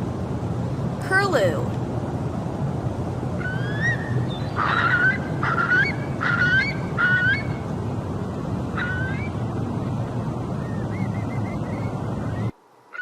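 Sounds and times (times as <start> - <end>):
low background noise: 0.0 - 13.0
curlew calling: 3.4 - 7.5, 10.6 - 13.0.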